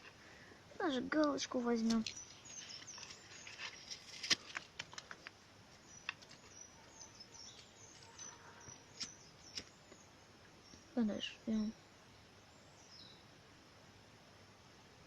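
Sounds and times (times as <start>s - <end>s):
twigs crackling in fire: 0.0s - 10.1s
bird chirps: 1.4s - 4.2s, 5.8s - 13.3s.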